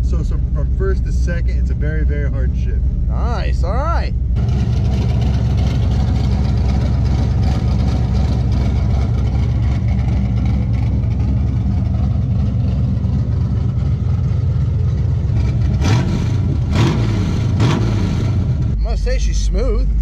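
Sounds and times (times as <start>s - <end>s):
car engine lopey idle: 0.0s - 20.0s.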